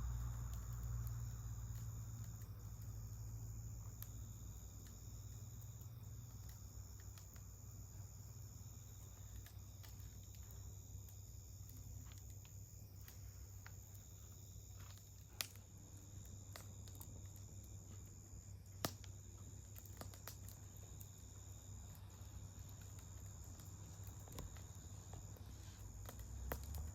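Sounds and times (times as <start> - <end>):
campfire crackling: 0.0 - 26.9
high insect trill: 0.0 - 26.9
sharp pops of burning wood: 0.1 - 26.9.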